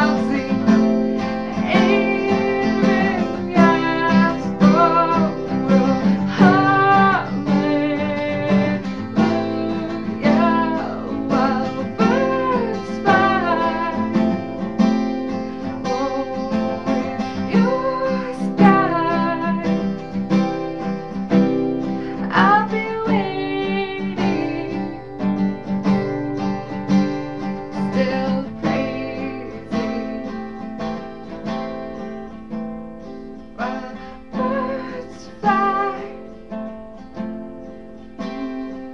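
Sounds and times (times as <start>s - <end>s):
woman singing worship song: 0.0s - 14.8s, 15.6s - 20.1s, 22.0s - 25.3s, 27.6s - 31.2s, 33.6s - 36.4s, 38.2s - 38.9s
strummed acoustic guitar: 0.0s - 38.9s.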